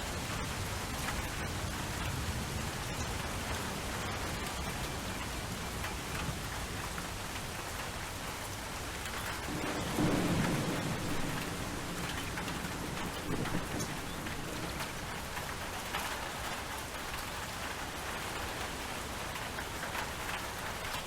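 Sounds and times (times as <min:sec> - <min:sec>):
steady rainfall: 0:00.0 - 0:21.0
low rumble of thunder: 0:09.1 - 0:16.8.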